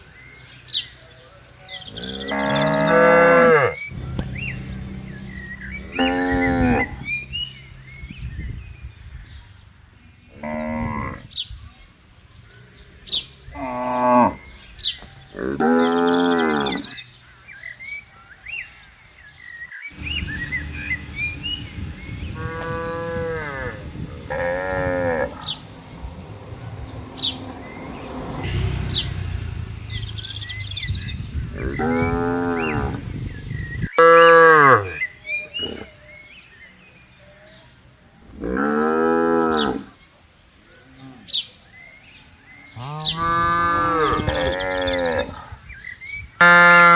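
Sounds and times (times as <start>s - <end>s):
small birds chirping: 0.0s - 46.5s
cattle mooing: 1.9s - 7.4s, 15.4s - 17.0s, 22.4s - 25.6s.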